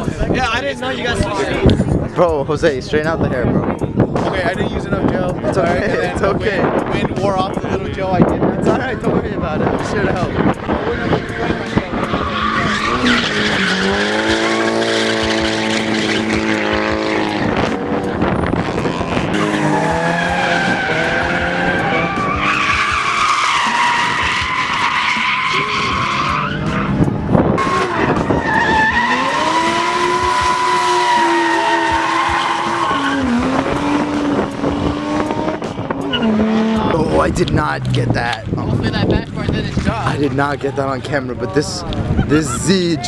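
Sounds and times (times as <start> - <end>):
car engine revving hard: 9.6 - 39.1
tyres squealing: 10.8 - 18.1, 18.9 - 34.6.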